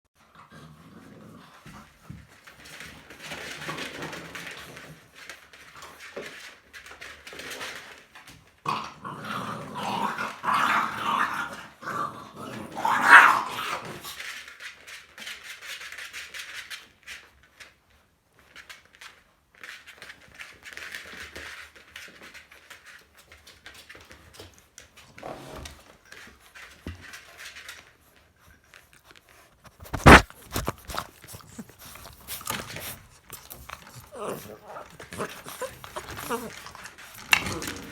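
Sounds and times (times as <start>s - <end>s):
puppies growling and whining: 0.3s - 2.0s, 8.7s - 14.2s, 29.8s - 37.9s.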